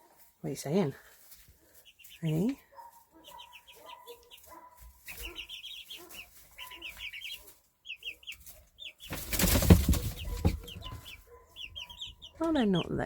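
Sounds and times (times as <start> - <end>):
chicks chirping: 0.6 - 13.0
loud rustling: 9.0 - 11.2.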